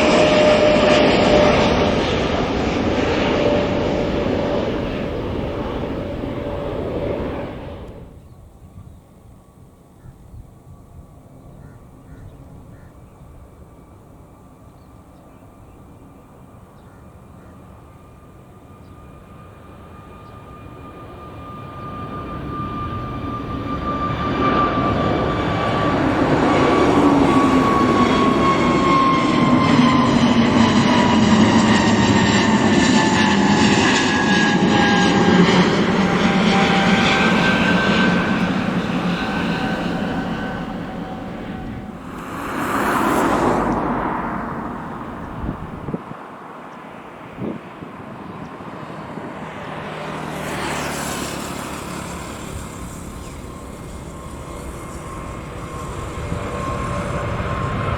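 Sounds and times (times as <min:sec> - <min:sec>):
jet engines at takeoff: 0:00.0 - 0:57.9.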